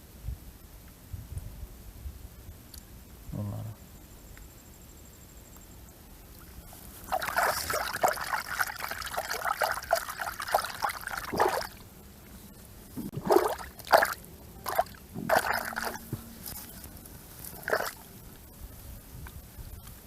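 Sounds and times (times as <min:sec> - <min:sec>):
water splashing and trickling: 0:06.4 - 0:11.9, 0:12.8 - 0:18.6.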